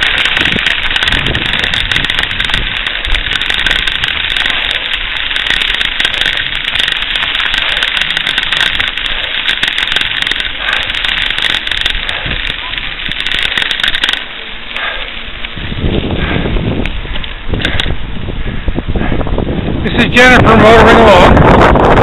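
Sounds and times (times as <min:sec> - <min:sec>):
rapid dense rattling: 0:00.0 - 0:22.0
wind buffeting: 0:00.0 - 0:22.0.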